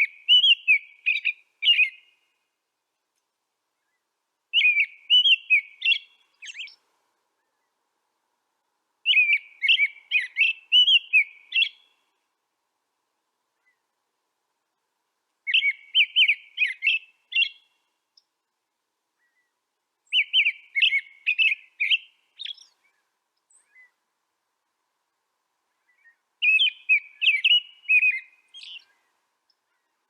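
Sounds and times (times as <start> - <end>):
songbird singing warbled phrases: 0.0 - 2.5, 3.8 - 7.8, 9.0 - 12.2, 15.4 - 18.4, 19.2 - 24.1, 25.7 - 30.0.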